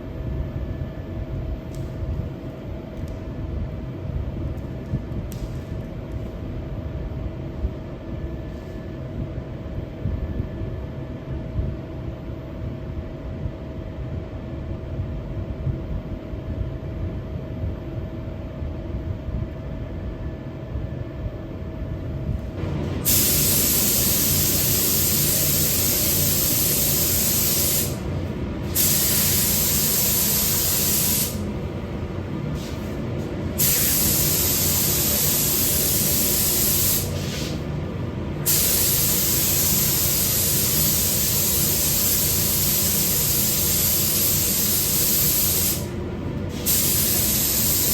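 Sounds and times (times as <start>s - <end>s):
steady low hum: 0.0s - 47.9s
paint spray gun hissing: 22.6s - 31.5s, 33.6s - 37.6s, 38.4s - 45.9s, 46.5s - 47.9s.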